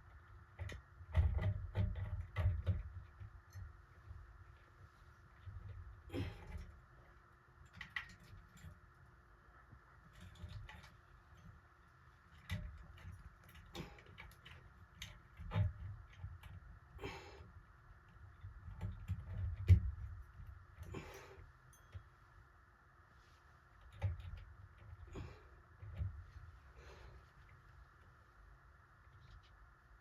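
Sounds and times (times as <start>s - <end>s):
small clicks and taps: 7.6s - 9.0s, 12.2s - 16.8s.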